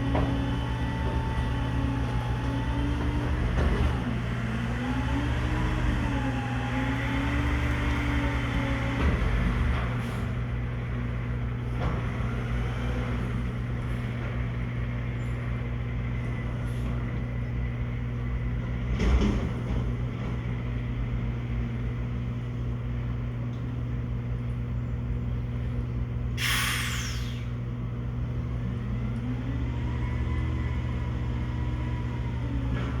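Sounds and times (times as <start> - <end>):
air brake hiss: 26.4 - 27.6
rising whine: 26.6 - 27.6.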